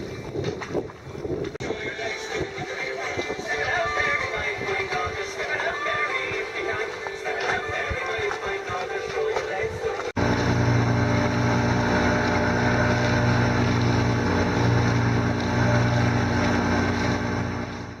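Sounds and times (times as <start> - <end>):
music: 0.0 - 10.2
boat engine running: 10.2 - 18.0.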